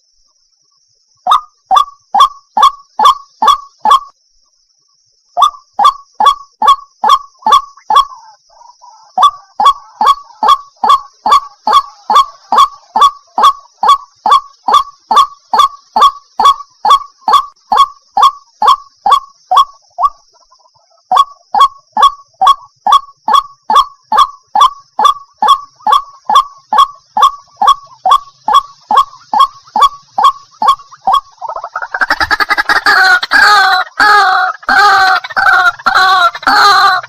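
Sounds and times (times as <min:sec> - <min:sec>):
waterhen harsh repeated calls: 0:01.3 - 0:04.1, 0:05.4 - 0:37.0.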